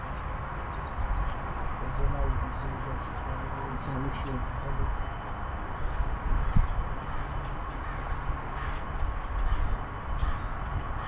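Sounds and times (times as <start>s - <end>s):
steady low rumble: 0.0s - 11.0s
crows cawing: 5.7s - 11.0s.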